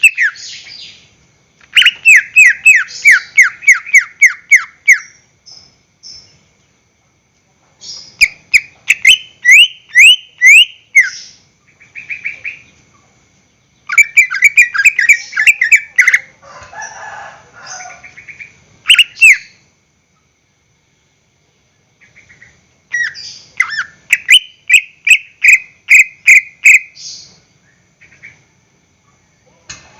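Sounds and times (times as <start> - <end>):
bird chattering: 0.0 - 1.0, 1.6 - 5.2, 7.8 - 13.0, 13.8 - 16.4, 17.7 - 19.6, 22.0 - 27.4
bird singing whistled notes: 0.0 - 1.1, 1.7 - 6.4, 7.8 - 12.8, 13.7 - 16.3, 18.2 - 19.6, 22.1 - 28.4.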